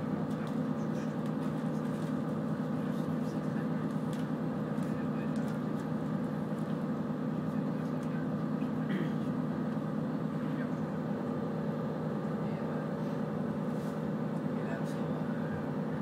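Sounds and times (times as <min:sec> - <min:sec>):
train running rumble and hum: 0:00.0 - 0:16.0.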